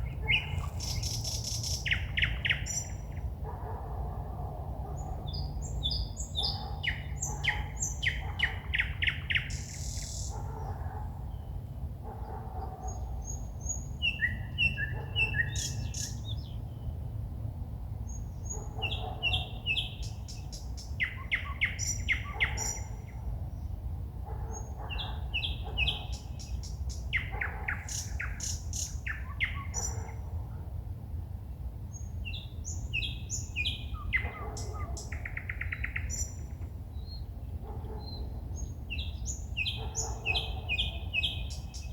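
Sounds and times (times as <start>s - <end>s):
songbird singing trills and whistles: 0.0s - 3.1s, 5.3s - 10.4s, 12.9s - 16.6s, 18.4s - 23.0s, 24.9s - 30.1s, 32.2s - 36.4s, 38.0s - 41.9s.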